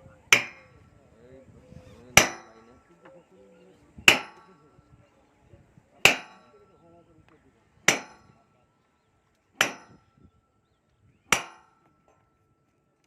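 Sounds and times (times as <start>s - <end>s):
hammer clanging on steel rail: 0.3s - 0.8s, 2.1s - 2.8s, 4.1s - 4.6s, 6.0s - 6.6s, 7.9s - 8.4s, 9.6s - 10.1s, 11.3s - 12.3s.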